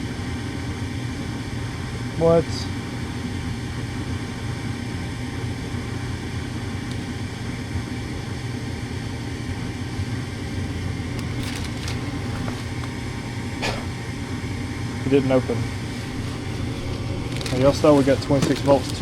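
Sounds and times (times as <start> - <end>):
furnace motor droning: 0.0 - 19.0.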